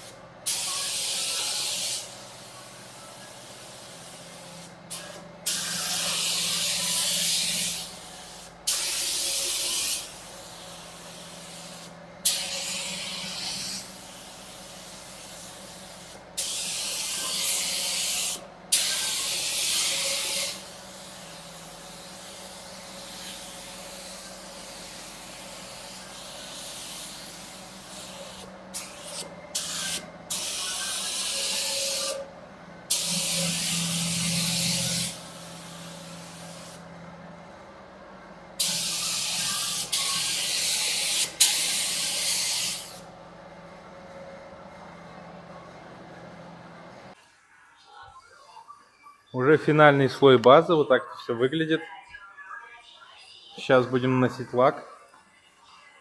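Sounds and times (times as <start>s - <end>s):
spray gun hissing: 0.5s - 32.2s, 32.9s - 36.8s, 38.6s - 43.0s.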